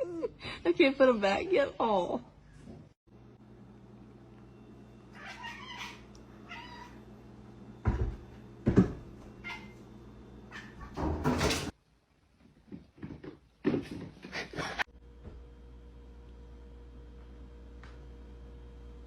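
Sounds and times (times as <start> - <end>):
cat meowing: 5.1 - 7.0, 9.4 - 9.8.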